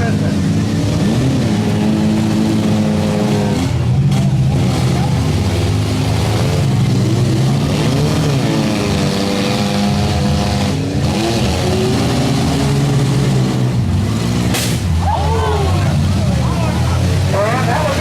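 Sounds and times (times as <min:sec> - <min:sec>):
car engines revving hard: 0:00.0 - 0:18.0
short sharp crack: 0:14.5 - 0:14.9.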